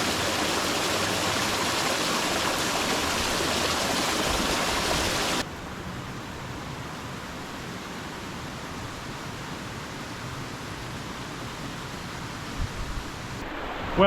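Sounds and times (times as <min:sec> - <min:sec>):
waterfall cascading over rocks: 0:00.0 - 0:05.4.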